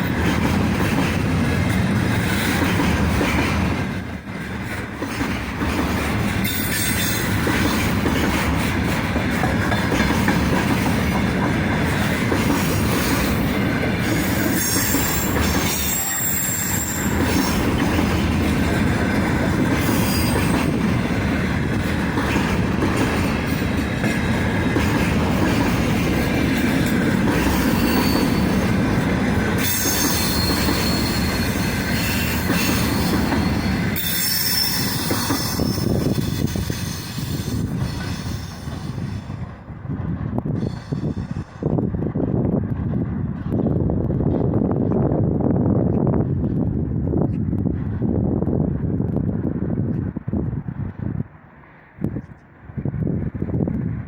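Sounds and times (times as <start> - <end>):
train wheels rumbling on rails: 0.0 - 54.0
high wheel squeals: 14.2 - 17.5, 19.9 - 20.6, 27.6 - 28.7, 29.6 - 38.7.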